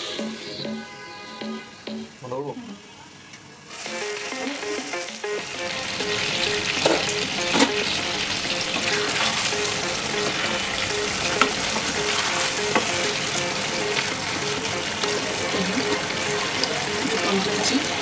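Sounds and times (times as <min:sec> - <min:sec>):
curry sizzling in a pan: 0:03.7 - 0:18.0.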